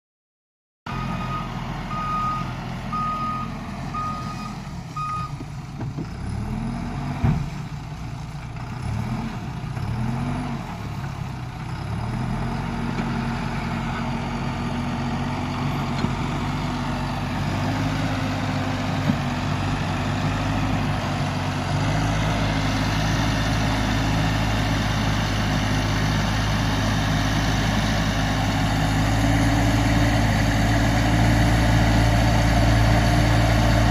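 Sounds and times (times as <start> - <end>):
diesel engine revving: 0.9 - 33.9
reversing alarm beeps: 1.0 - 5.4.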